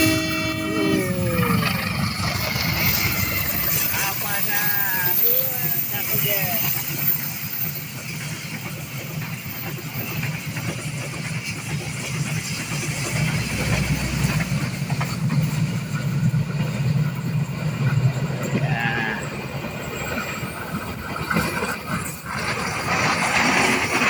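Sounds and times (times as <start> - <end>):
engine humming: 0.0 - 4.5.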